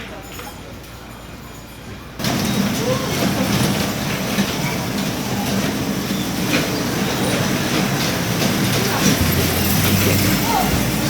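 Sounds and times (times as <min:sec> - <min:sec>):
train running rumble: 0:02.2 - 0:11.0.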